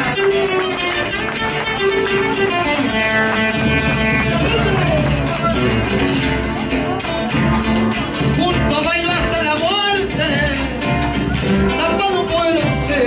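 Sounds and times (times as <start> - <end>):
acoustic guitar folk music: 0.0 - 13.0.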